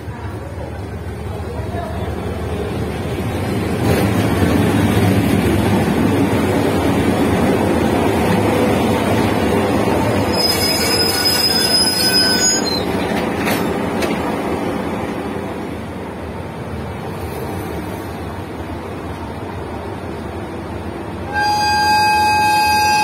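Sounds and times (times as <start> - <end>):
diesel locomotive passing: 0.0 - 23.0
train coaches rumbling by: 0.0 - 23.0
high metallic squeal: 10.3 - 12.9.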